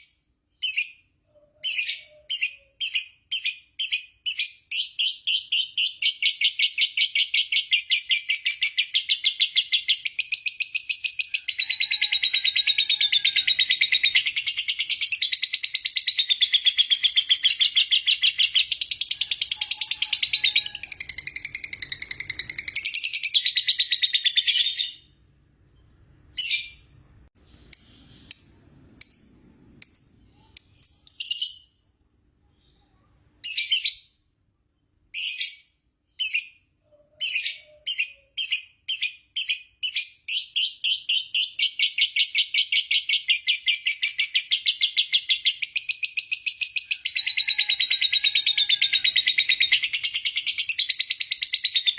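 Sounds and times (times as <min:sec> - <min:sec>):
bird chirps: 0:00.0 - 0:34.2, 0:34.8 - 0:51.9
lovebird rapid trill: 0:05.1 - 0:24.8.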